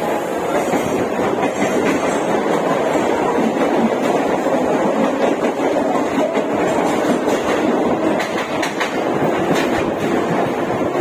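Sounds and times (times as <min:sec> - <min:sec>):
train wheels rumbling on track: 0:00.0 - 0:11.0
wheels clicking over rail joints: 0:05.0 - 0:10.2.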